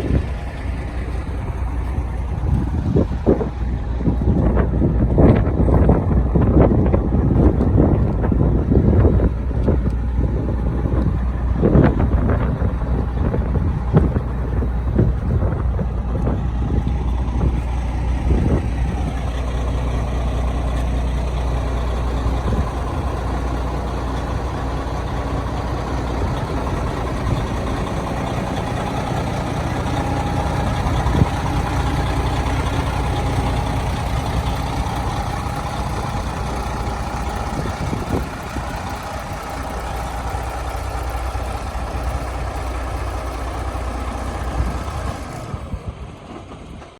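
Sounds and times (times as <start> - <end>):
truck diesel engine running: 0.0 - 46.9.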